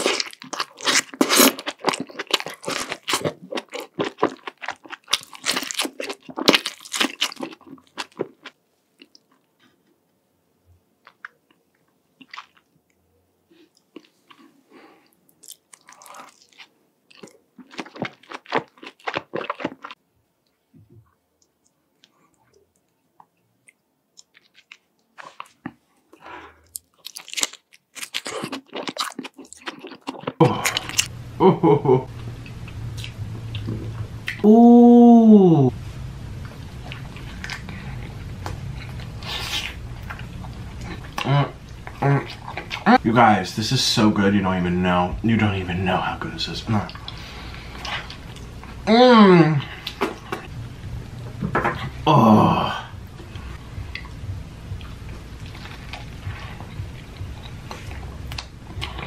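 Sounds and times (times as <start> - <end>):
biting and crunchy chewing: 0.0 - 9.8, 13.6 - 20.0, 24.2 - 31.1, 36.6 - 43.0
steady low hum: 30.4 - 59.0.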